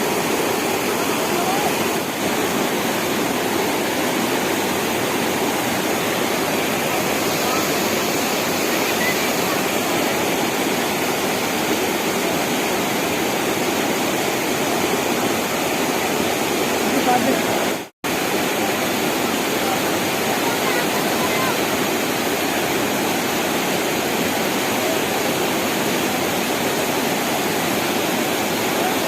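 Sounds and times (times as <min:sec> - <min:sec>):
rushing mountain stream: 0:00.0 - 0:29.0.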